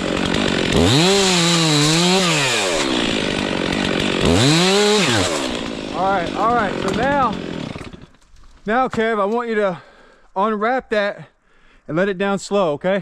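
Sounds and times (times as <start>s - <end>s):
chainsaw revving and idling: 0.0s - 8.2s.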